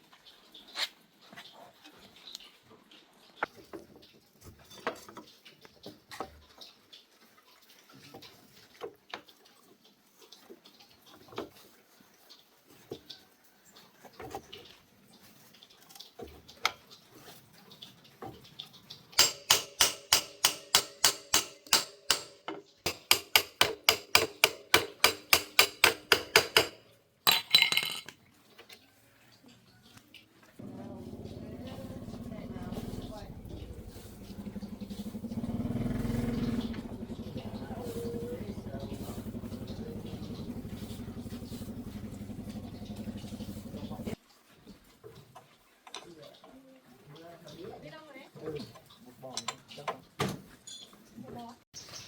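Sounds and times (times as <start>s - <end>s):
metal tools clinking: 26.5s - 28.2s.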